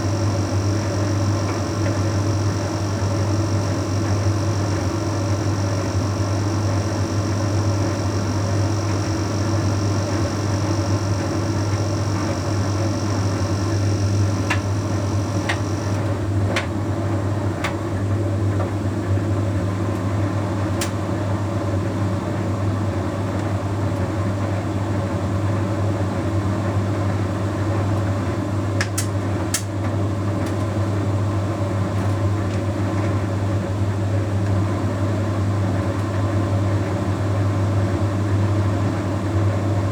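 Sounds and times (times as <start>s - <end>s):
faint high whine: 0.0s - 16.1s
tumble dryer humming: 0.0s - 16.7s.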